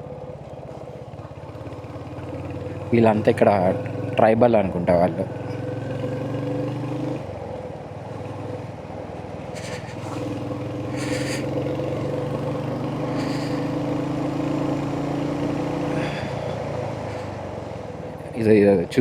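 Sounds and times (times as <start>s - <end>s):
motorcycle engine running: 0.0s - 19.0s
brief hissing: 9.6s - 10.3s, 11.0s - 11.5s.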